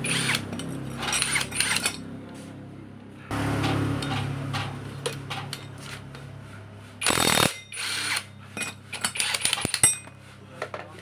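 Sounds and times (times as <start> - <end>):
impact wrench bursts: 0.0 - 2.0, 7.0 - 8.3, 8.9 - 10.0
clicks and knocks of metal tools: 3.6 - 6.3, 7.4 - 11.0.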